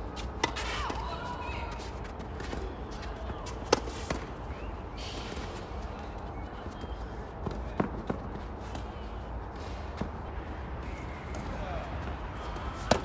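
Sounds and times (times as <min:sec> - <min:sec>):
tennis ball struck by racket: 0:12.8 - 0:13.0.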